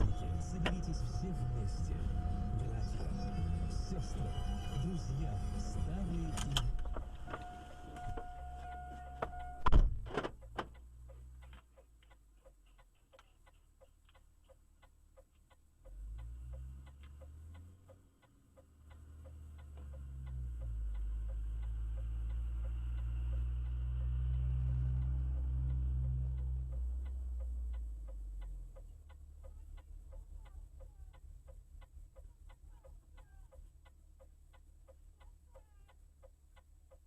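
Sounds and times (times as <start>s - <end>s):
steady beeping tones: 0.0s - 9.7s
low rumble: 0.0s - 10.1s
rapid ticking: 10.4s - 37.0s.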